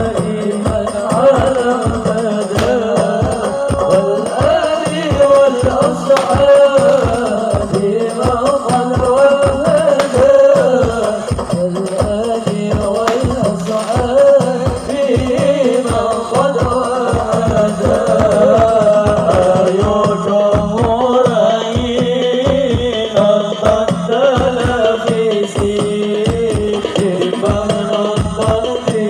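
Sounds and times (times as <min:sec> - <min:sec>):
devotional song with wavering melody: 0:00.0 - 0:29.0
hand drums and jingles: 0:00.0 - 0:29.0.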